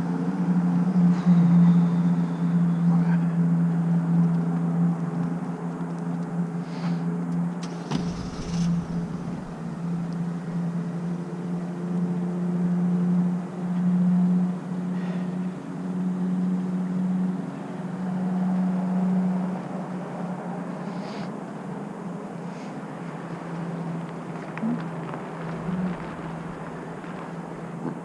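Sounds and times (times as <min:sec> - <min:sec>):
vehicle humming: 0:00.0 - 0:28.0
rumble and knock: 0:07.6 - 0:11.2, 0:25.0 - 0:28.0.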